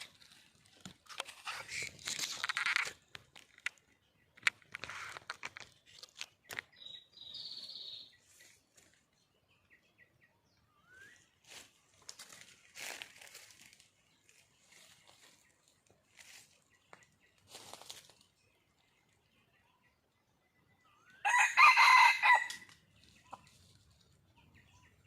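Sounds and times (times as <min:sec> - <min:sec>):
rustling in dry leaves: 0:00.0 - 0:03.0, 0:11.4 - 0:16.7, 0:17.4 - 0:18.9
short high bird chirps: 0:06.8 - 0:08.2.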